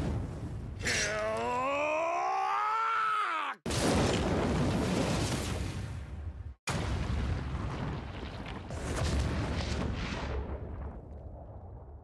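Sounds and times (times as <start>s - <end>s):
rising drawn-out cry: 0.8s - 3.6s
explosion rumble: 6.1s - 12.0s.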